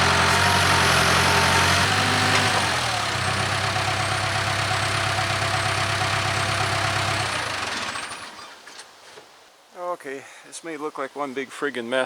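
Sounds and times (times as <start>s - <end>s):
backhoe diesel engine idling: 0.0s - 8.4s.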